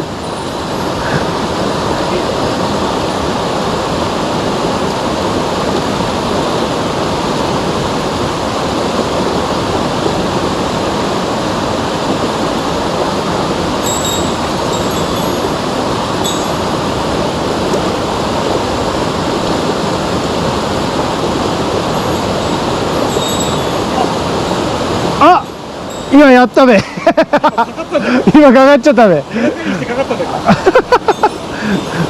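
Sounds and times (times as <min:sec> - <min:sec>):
stream water rushing: 0:00.0 - 0:32.0.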